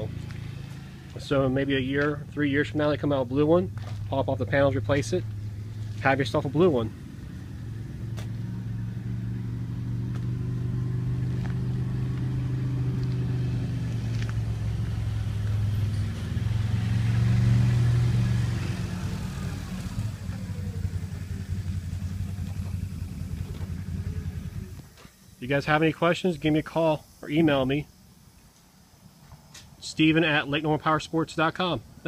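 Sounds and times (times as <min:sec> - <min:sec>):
engine running: 0:00.0 - 0:25.1.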